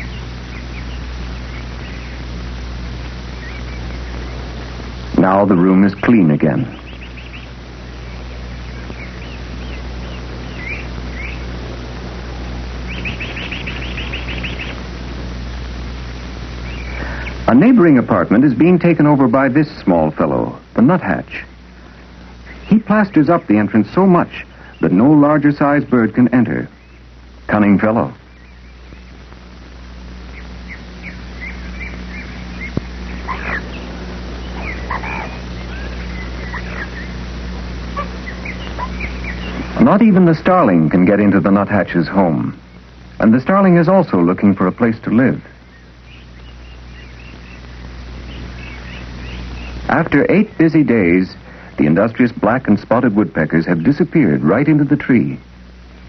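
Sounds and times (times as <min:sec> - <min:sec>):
quick run of bird notes: 0:00.0 - 0:15.5, 0:16.4 - 0:19.9, 0:27.8 - 0:40.9
low steady hum: 0:00.0 - 0:56.0.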